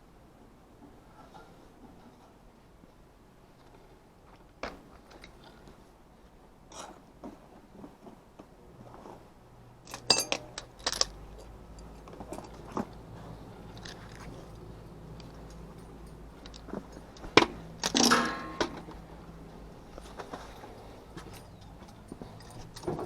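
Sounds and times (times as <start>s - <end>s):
low steady hum: 9.8s - 23.0s
metallic tool clinks: 9.9s - 11.1s, 17.2s - 18.9s.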